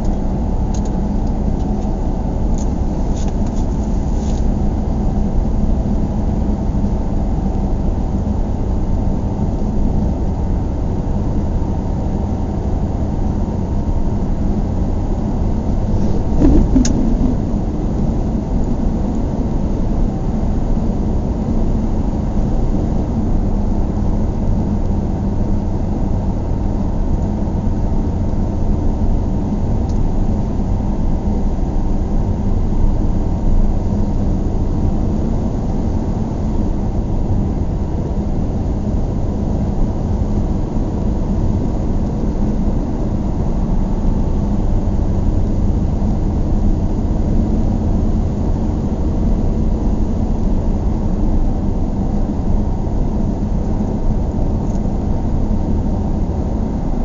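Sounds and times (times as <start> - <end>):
vehicle low rumble: 13.7 - 20.8.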